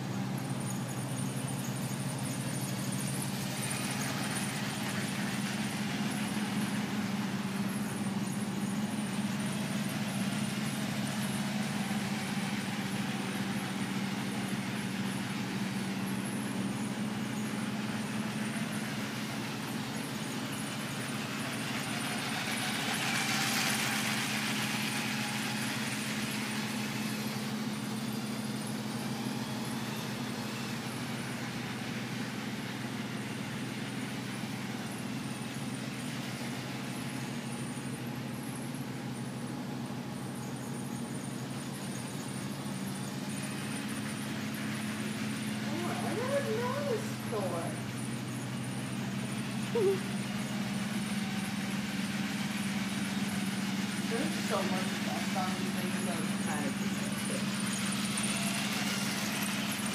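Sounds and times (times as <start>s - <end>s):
toy train rattling: 0.0s - 38.0s, 41.0s - 59.9s
electric motor hum: 43.6s - 59.9s.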